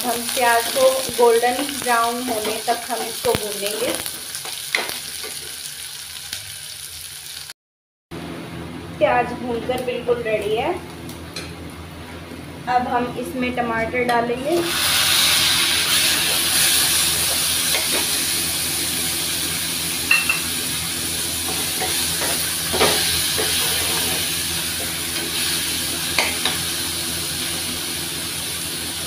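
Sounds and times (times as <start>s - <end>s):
tomatoes sizzling in hot oil: 0.0s - 7.6s, 14.5s - 29.0s.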